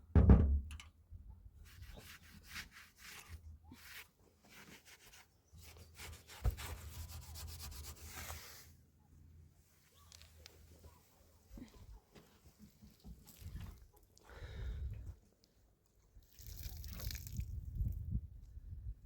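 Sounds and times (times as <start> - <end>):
faint rubbing and scraping: 1.6 - 8.8.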